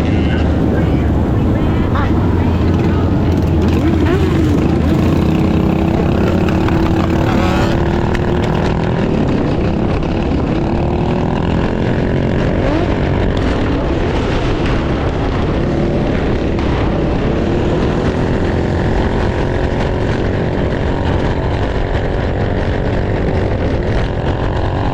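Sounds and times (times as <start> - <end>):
low rush of noise: 0.0 - 10.8
mini bike engines revving: 0.0 - 24.9.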